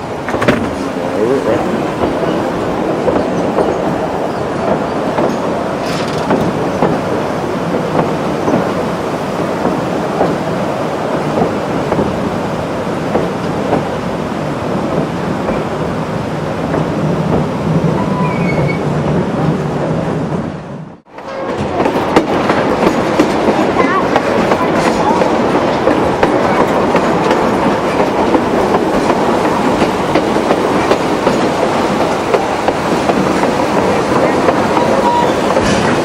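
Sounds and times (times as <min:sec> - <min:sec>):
wheels clacking over rail joints: 0:00.0 - 0:10.5, 0:21.1 - 0:36.0
train running rumble: 0:00.0 - 0:36.0.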